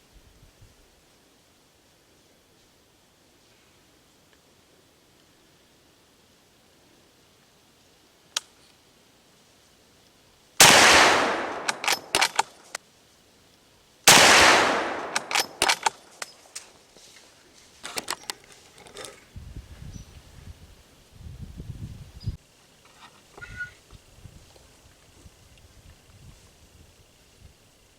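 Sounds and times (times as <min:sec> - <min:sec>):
shotgun shots with echo: 0:10.6 - 0:12.5, 0:14.1 - 0:16.0
sharp click: 0:10.6 - 0:12.8, 0:14.1 - 0:16.7.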